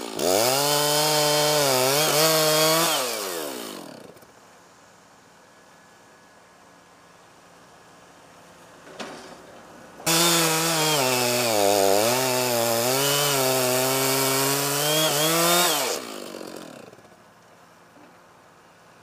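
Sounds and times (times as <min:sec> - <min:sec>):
chainsaw cutting wood: 0:00.0 - 0:04.2, 0:10.0 - 0:17.2.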